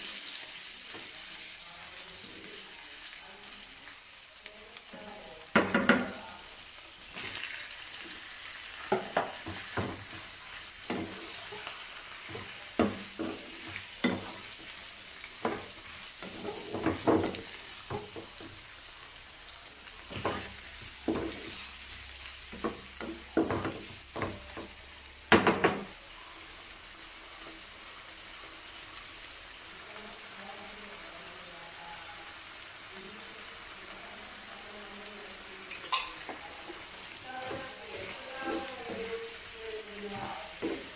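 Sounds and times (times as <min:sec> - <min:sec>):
meat sizzling in oil: 0:00.0 - 0:40.9
wooden spatula scraping a pan: 0:08.8 - 0:18.4, 0:20.0 - 0:24.6, 0:36.6 - 0:40.9.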